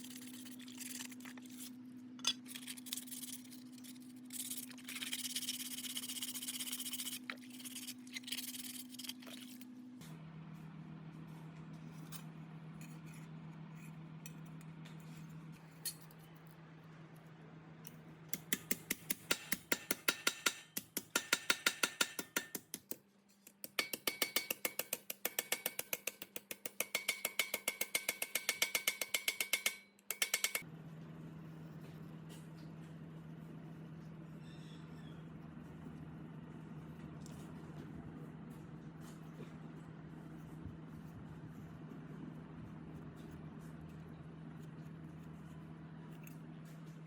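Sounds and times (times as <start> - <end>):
steady low hum: 30.2 - 47.0.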